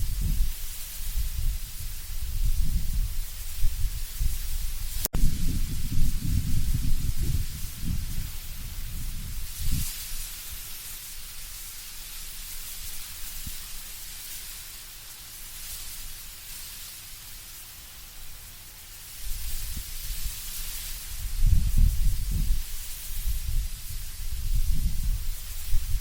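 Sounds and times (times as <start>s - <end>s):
leaves rustling: 0.0s - 26.0s
wind blowing through trees: 0.0s - 26.0s.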